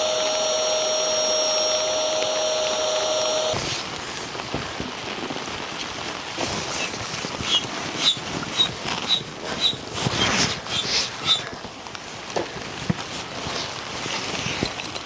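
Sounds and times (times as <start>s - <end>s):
rain hiss: 0.0s - 9.5s.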